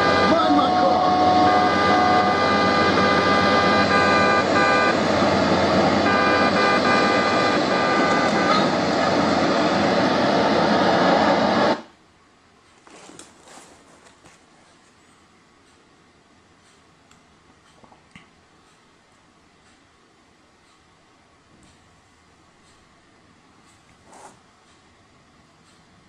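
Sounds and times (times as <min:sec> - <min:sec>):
horn-like tones: 0:00.0 - 0:10.2
traffic noise from speaker: 0:08.0 - 0:08.9.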